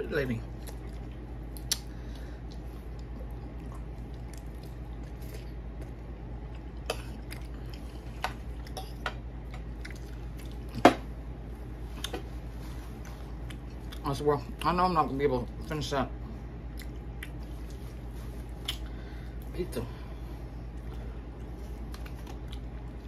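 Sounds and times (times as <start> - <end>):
steady low hum: 0.0 - 23.0
person chewing: 0.5 - 10.8, 12.9 - 14.7, 16.7 - 19.5, 20.6 - 23.0.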